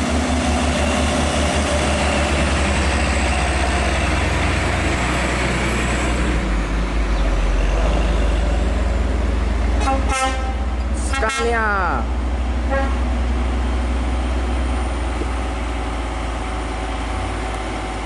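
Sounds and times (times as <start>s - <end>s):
diesel truck engine: 0.0s - 18.0s
road noise: 0.0s - 18.0s
truck air horn: 9.8s - 11.7s, 12.7s - 13.1s.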